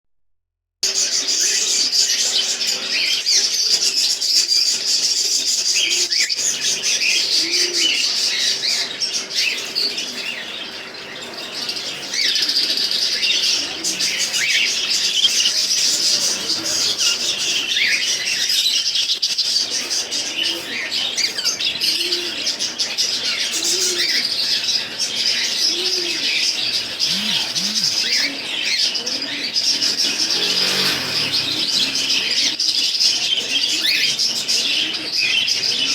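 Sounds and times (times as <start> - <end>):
birds chirping and twittering: 0.8 - 35.9
low short bird calls: 25.7 - 28.4.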